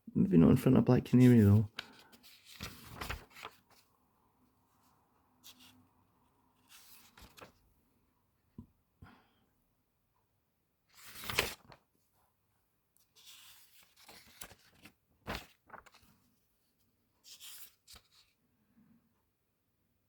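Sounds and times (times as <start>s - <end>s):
paper pages turning: 1.3s - 3.8s, 5.4s - 5.8s, 6.6s - 7.6s, 10.9s - 11.8s, 13.0s - 16.2s, 17.2s - 18.4s.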